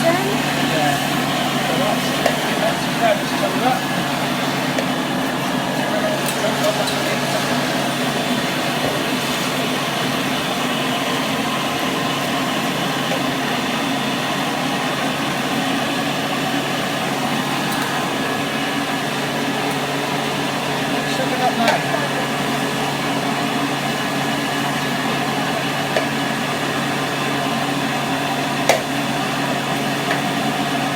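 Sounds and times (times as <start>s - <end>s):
vacuum cleaner running: 0.0s - 30.9s.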